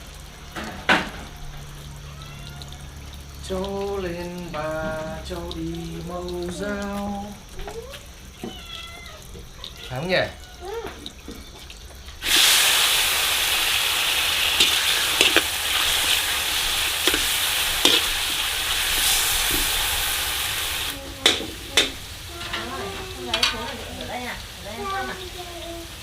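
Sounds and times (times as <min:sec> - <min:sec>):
food sizzling in hot oil: 0:00.0 - 0:26.0
utensil clicking against pan: 0:14.5 - 0:16.3, 0:17.0 - 0:18.3, 0:21.1 - 0:22.7.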